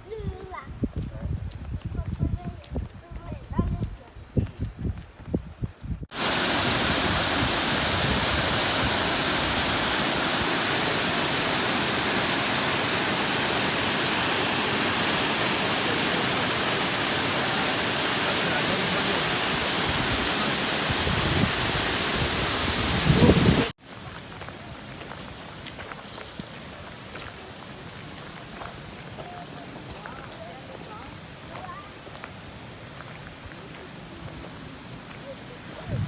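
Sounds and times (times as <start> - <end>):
waterfall rushing: 6.1 - 23.8.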